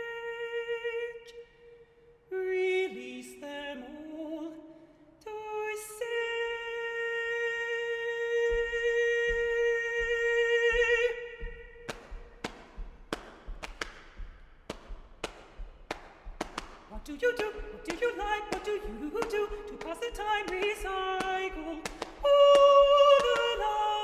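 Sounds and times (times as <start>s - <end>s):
body percussion thumps: 8.5s - 23.9s.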